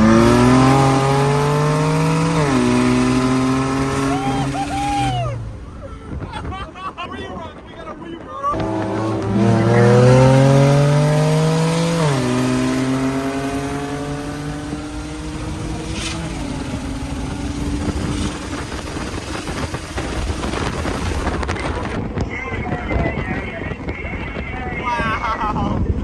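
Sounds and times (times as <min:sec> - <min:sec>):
car engine accelerating hard: 0:00.0 - 0:05.8, 0:08.6 - 0:22.0
gear upshift: 0:00.0 - 0:06.5, 0:08.6 - 0:22.3.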